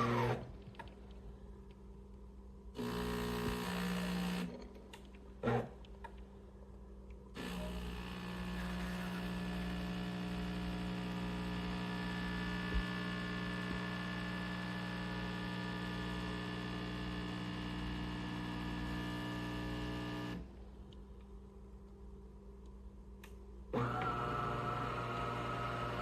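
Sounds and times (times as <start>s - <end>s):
espresso machine humming: 2.8s - 4.5s, 7.4s - 20.4s, 23.8s - 26.0s.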